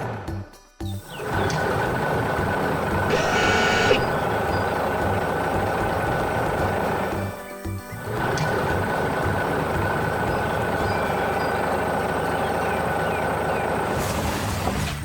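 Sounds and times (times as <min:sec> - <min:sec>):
engine running: 0:01.0 - 0:14.9
thin high whine: 0:03.1 - 0:04.2.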